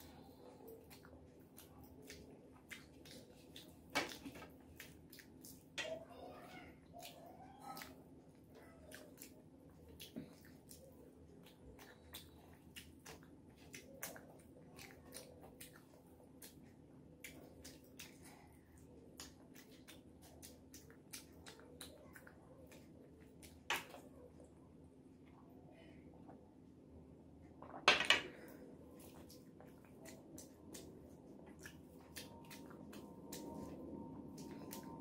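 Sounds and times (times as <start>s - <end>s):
wet chewing: 0.0s - 24.5s, 28.5s - 35.0s
low steady hum: 0.0s - 35.0s.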